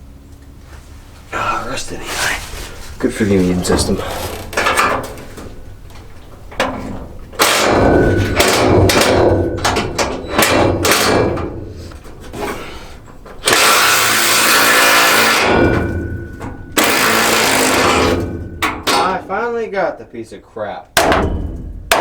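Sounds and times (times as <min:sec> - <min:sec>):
sharp metal knocks: 0:03.8 - 0:11.7, 0:13.4 - 0:19.3, 0:20.9 - 0:22.0
power tool running: 0:13.4 - 0:15.5, 0:16.8 - 0:18.2.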